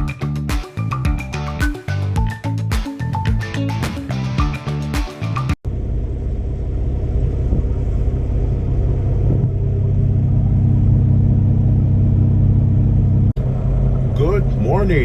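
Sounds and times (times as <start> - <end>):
diesel truck engine droning: 5.6 - 15.0.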